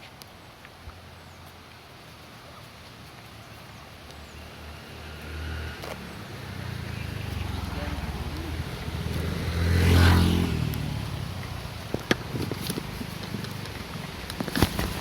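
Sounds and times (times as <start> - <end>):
vehicle driving past: 4.2 - 11.9.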